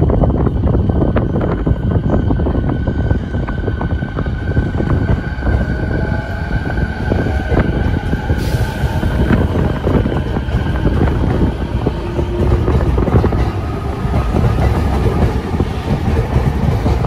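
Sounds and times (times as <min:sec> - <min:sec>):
train wheels rumbling and clacking: 0:00.0 - 0:17.0.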